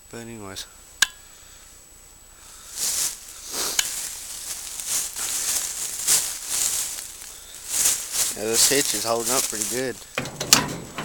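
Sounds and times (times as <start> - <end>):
rustling and crunching: 2.5 - 11.0.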